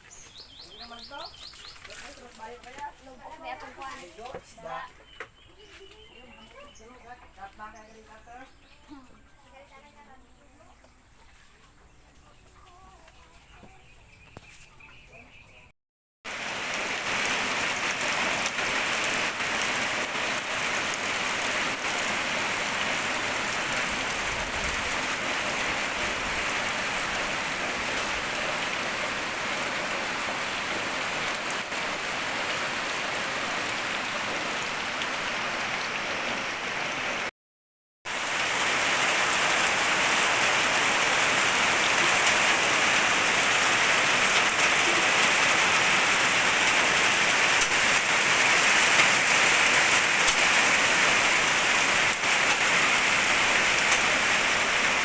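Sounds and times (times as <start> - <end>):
falling water hissing: 16.3 - 37.3, 38.1 - 55.0.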